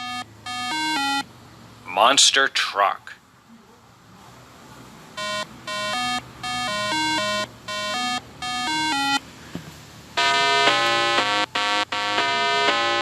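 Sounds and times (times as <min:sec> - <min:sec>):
electronic beeping tune: 0:00.0 - 0:01.3, 0:05.2 - 0:09.2, 0:10.2 - 0:13.0.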